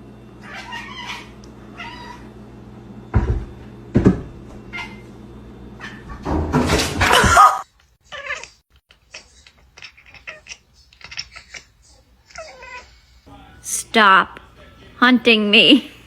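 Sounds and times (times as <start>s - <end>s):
cat crying: 0.4s - 2.3s, 8.1s - 13.0s.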